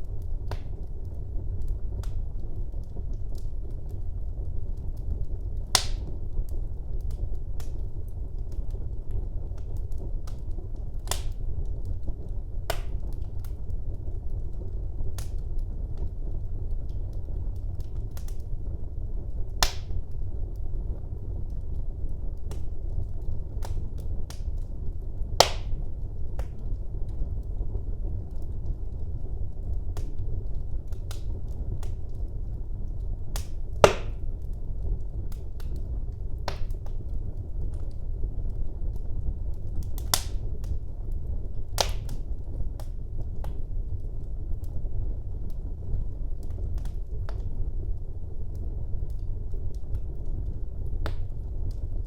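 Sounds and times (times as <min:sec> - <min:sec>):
fire crackling and popping: 0:00.0 - 0:52.0
fire flames rumbling: 0:00.0 - 0:52.0.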